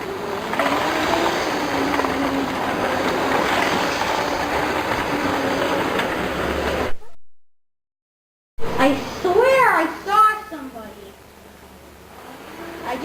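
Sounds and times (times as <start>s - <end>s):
moving vehicle rumble: 0.0s - 7.0s.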